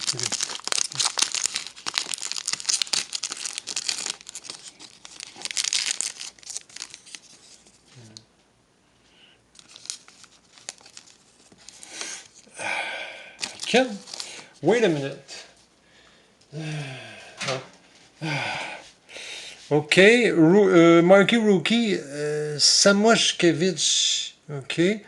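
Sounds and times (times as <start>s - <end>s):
wrapper tearing and crinkling: 0.0s - 7.8s, 9.6s - 12.5s, 13.4s - 14.5s.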